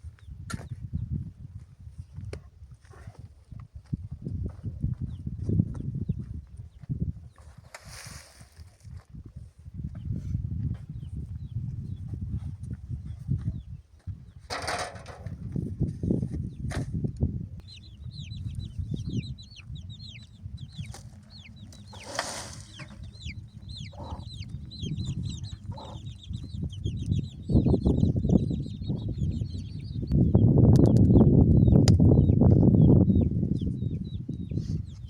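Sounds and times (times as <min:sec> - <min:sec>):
birds chirping: 0:17.5 - 0:35.0.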